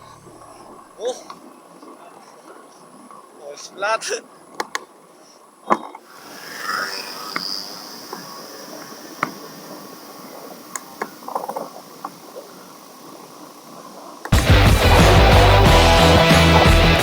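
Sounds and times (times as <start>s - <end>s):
bicycle tyres rumbling: 6.1s - 17.0s
loud rock music: 14.4s - 17.0s.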